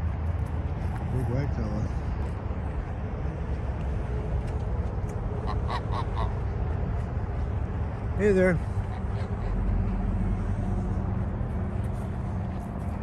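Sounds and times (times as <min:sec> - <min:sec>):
goose honking: 0:05.4 - 0:06.4.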